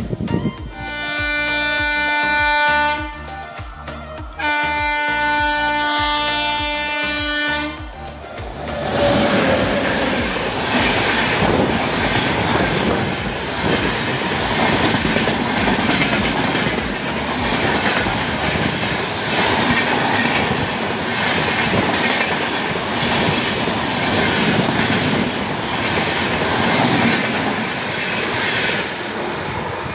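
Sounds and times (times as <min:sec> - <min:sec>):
train wheels rumbling on rails: 0:04.3 - 0:29.9
clickety-clack over rail joints: 0:08.5 - 0:29.9.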